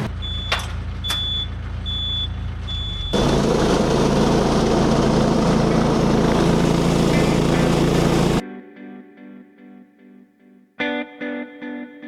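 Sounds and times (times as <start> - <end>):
tractor engine running: 3.1 - 8.4.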